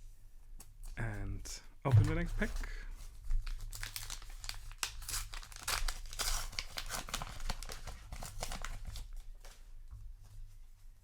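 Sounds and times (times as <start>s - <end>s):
paper wrapper tearing and crinkling: 1.9s - 9.6s.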